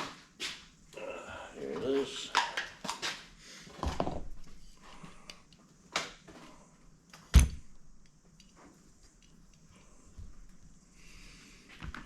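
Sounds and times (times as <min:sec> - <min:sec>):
objects knocking and clunking: 0:02.4 - 0:05.1
heavy thunk: 0:07.3 - 0:07.7.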